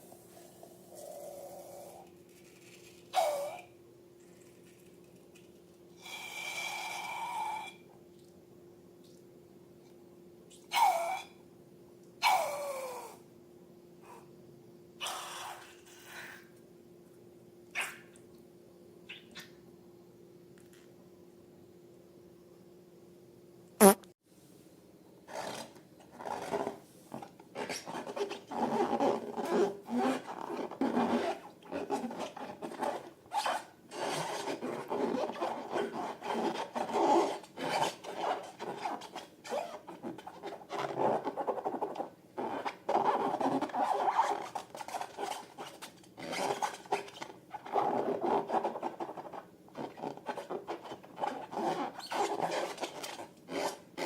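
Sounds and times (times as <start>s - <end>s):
hands rubbing rubber balloons: 25.3s - 54.0s.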